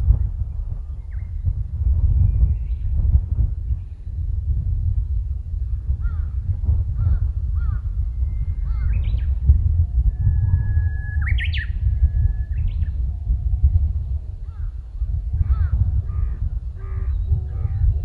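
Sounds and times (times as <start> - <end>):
bird whistle with rising call: 10.1 - 12.9.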